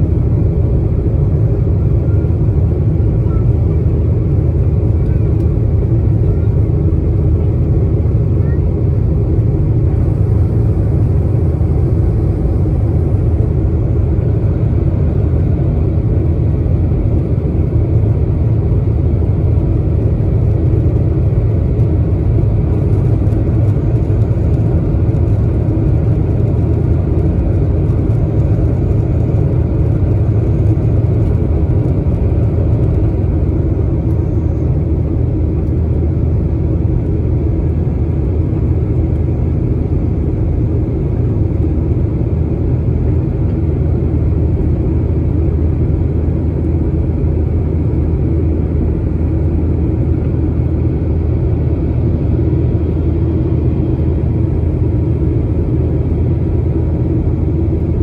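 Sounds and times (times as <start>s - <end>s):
jet airliner cabin rumble: 0.0s - 58.0s.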